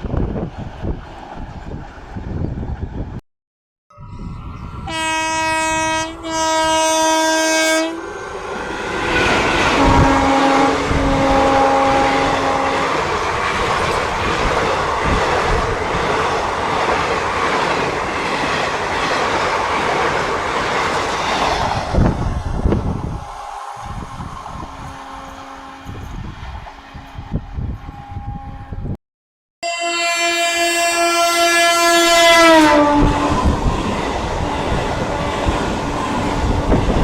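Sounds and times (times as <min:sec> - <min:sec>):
train coaches rushing and clattering: 0:04.6 - 0:28.3, 0:32.2 - 0:37.0
train horn blasts: 0:04.8 - 0:08.0, 0:09.7 - 0:13.1, 0:24.6 - 0:29.0, 0:29.6 - 0:33.6.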